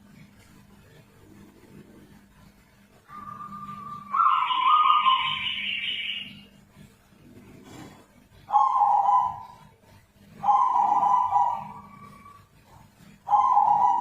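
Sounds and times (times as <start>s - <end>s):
dove calling: 3.1s - 6.5s, 7.7s - 14.0s.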